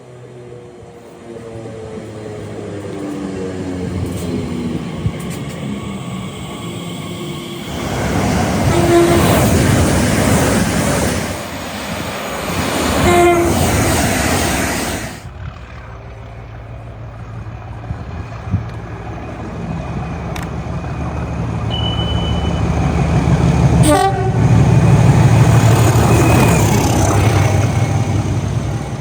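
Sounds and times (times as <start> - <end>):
train engine hum: 0.0 - 29.0
train passing: 0.0 - 29.0
train horn toot: 8.6 - 9.8, 13.0 - 13.8, 21.7 - 23.0, 23.8 - 24.6.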